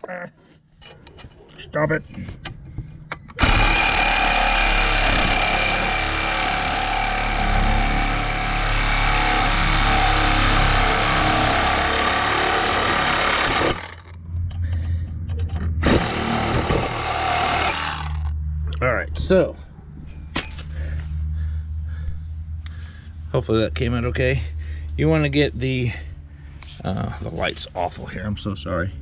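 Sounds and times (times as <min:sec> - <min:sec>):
power saw cutting metal pipe: 0:03.4 - 0:14.2, 0:15.8 - 0:18.3.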